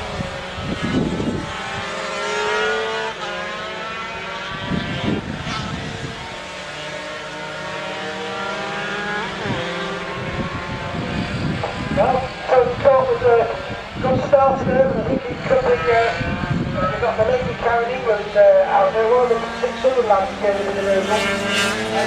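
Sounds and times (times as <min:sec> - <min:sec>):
racing motorcycle engines: 0:00.0 - 0:22.0.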